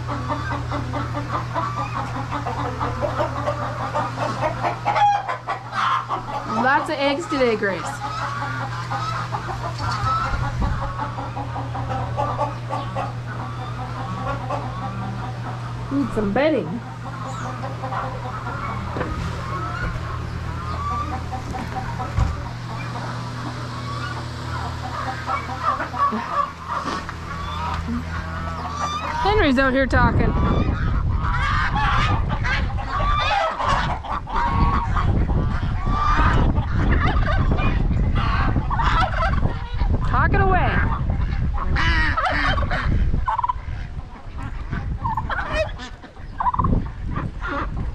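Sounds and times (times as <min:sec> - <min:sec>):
chickens clucking: 0:00.0 - 0:47.9
geese honking: 0:00.0 - 0:47.9
steady low hum: 0:00.0 - 0:47.9
wind rumble on microphone: 0:09.2 - 0:13.3, 0:27.2 - 0:47.9.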